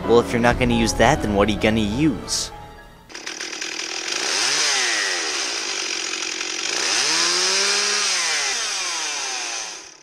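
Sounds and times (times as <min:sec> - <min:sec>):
chainsaw revving: 0:03.1 - 0:10.0.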